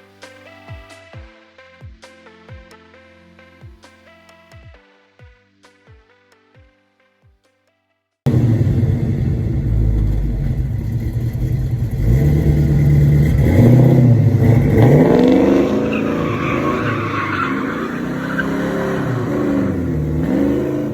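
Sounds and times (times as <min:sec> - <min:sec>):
pickup engine revving: 0:08.3 - 0:20.9.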